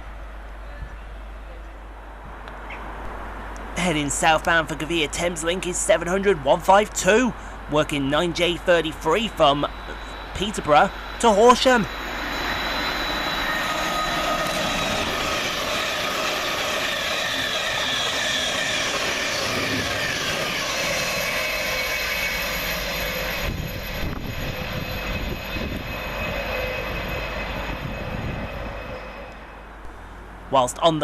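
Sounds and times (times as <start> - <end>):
whining traction tones: 4.3 - 30.2
train wheel and air rush: 7.0 - 30.3
low train rumble with knocks: 7.6 - 30.1.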